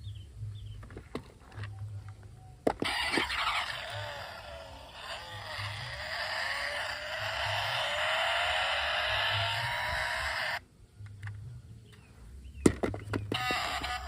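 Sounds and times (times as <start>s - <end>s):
toy cars rolling over surface: 2.7s - 10.6s, 13.1s - 14.0s
wavering whine: 2.8s - 10.6s.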